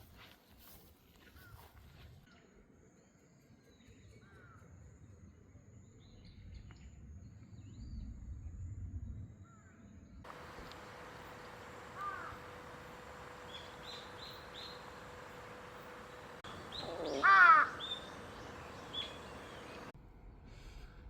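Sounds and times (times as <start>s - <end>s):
bird chirping: 10.3s - 20.0s
loud bird call: 10.3s - 20.0s
background hiss: 10.3s - 21.0s.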